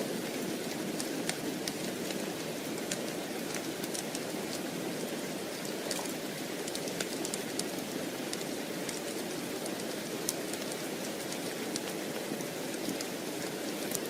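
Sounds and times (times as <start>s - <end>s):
steady rain: 0.0s - 14.0s
small sharp crackles: 2.8s - 12.0s.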